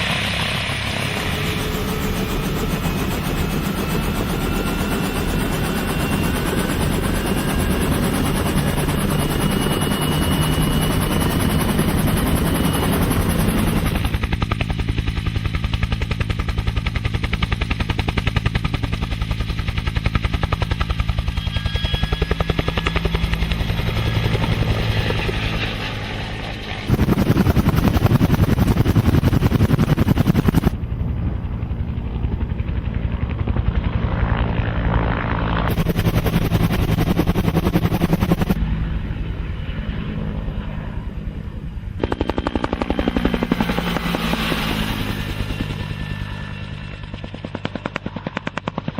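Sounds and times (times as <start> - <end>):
helicopter engine drone: 0.0 - 48.9
helicopter rotor beat: 0.0 - 48.9.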